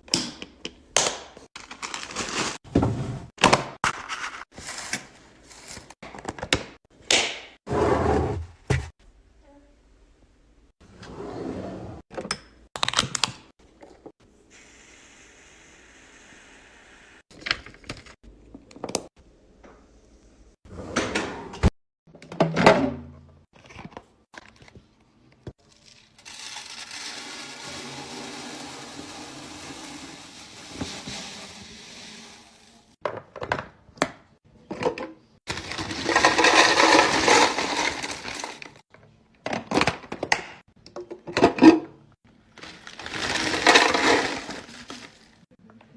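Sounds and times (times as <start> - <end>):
items knocking and clicking: 6.0 - 7.3, 33.0 - 42.0.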